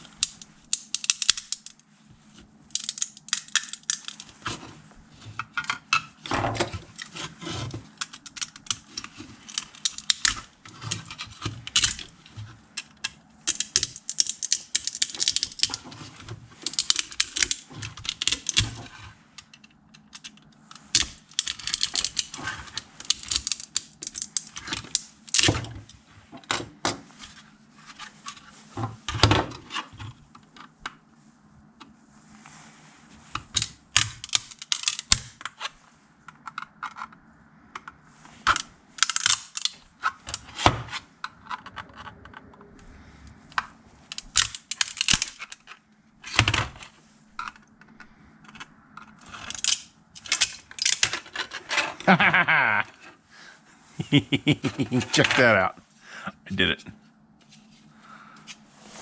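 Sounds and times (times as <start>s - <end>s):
plastic supports cracking and snapping: 0.0s - 1.8s, 2.7s - 4.4s, 7.9s - 12.1s, 12.8s - 16.0s, 16.6s - 18.9s, 20.0s - 25.6s, 33.6s - 35.4s, 38.5s - 40.5s, 44.1s - 45.7s, 48.5s - 51.5s.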